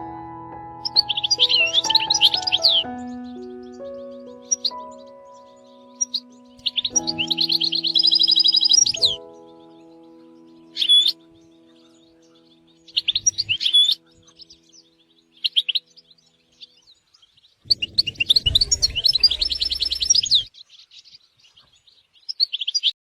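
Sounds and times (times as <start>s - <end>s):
goldfinch twittering and trilling: 0.8s - 22.9s.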